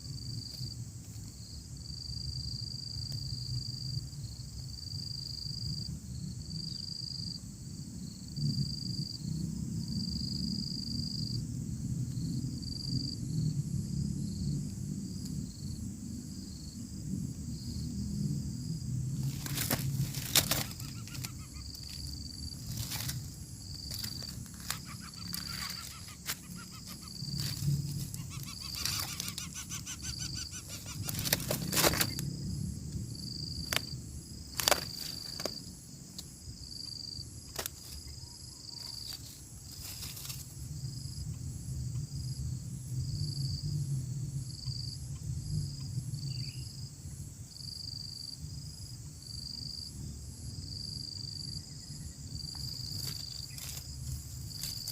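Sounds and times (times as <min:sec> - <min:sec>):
insect chirping: 0:00.0 - 0:54.9
rustles and clicks: 0:19.2 - 0:29.6, 0:30.6 - 0:32.3, 0:33.6 - 0:35.7, 0:37.5 - 0:38.1, 0:38.9 - 0:40.6, 0:52.5 - 0:54.9.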